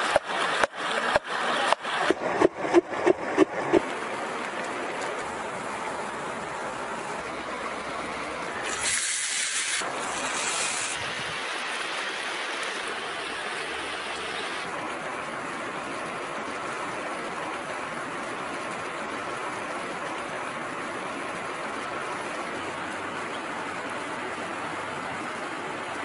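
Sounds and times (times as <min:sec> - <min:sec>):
food sizzling in hot oil: 0:08.6 - 0:11.3.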